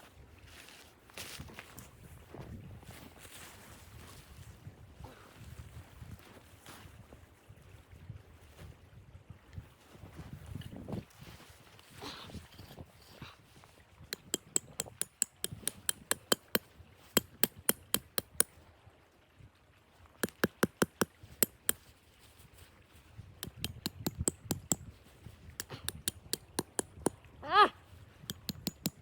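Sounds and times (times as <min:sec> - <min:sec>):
sharp clicks: 0:28.3 - 0:29.0.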